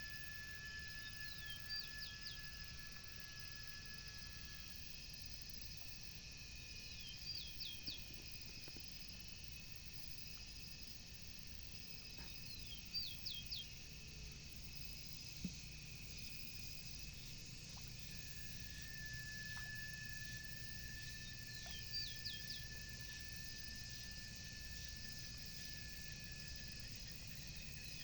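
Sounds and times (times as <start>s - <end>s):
faint repeating trill: 0.0s - 7.8s, 15.2s - 28.0s
insect-like chirring: 0.0s - 28.0s
thin steady whine: 0.0s - 28.0s.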